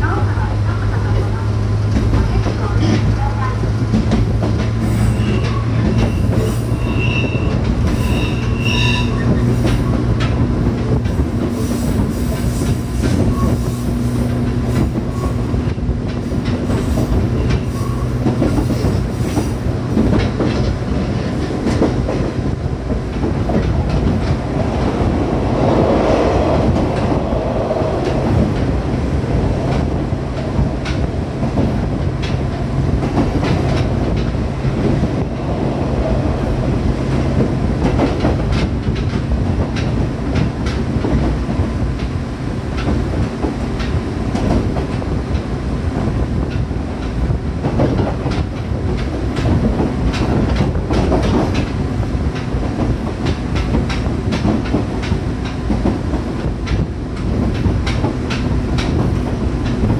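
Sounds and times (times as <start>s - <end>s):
wheels clattering on rail: 0.0s - 59.9s.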